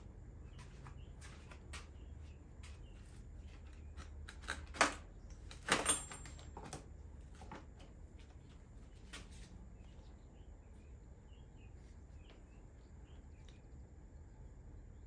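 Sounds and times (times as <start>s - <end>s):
clicks and knocks of tools: 3.6s - 7.7s.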